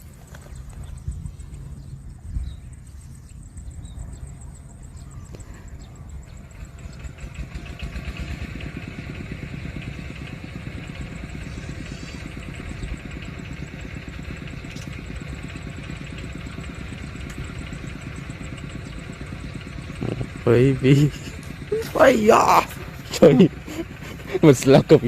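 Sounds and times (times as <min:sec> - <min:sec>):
small engine pulsing: 0:00.0 - 0:25.0.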